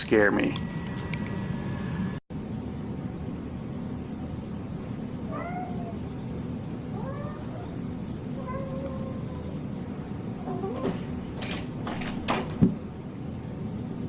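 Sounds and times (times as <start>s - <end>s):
low background hum: 0.0s - 14.0s
cat meowing softly: 5.3s - 6.0s, 6.9s - 7.8s.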